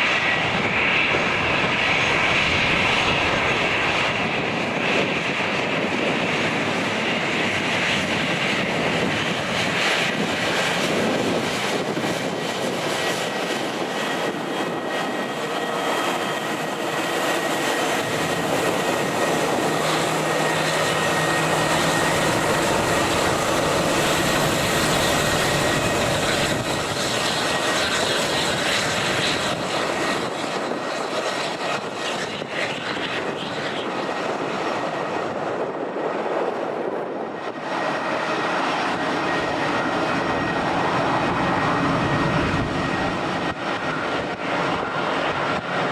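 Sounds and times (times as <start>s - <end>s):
jet engines running: 0.0s - 45.9s
wind buffeting microphone: 0.0s - 45.9s.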